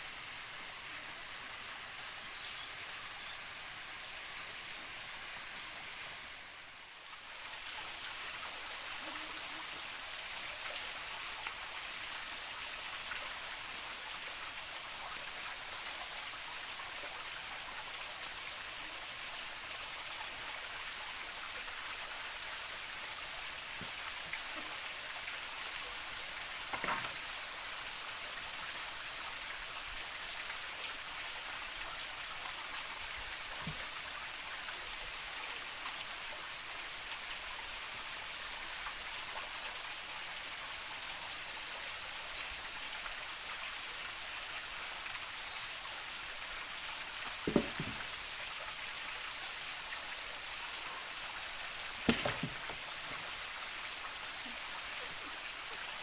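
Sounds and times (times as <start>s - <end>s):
high-pitched insect chorus: 0.0s - 56.0s
soft knocks: 47.5s - 48.1s, 52.1s - 53.2s.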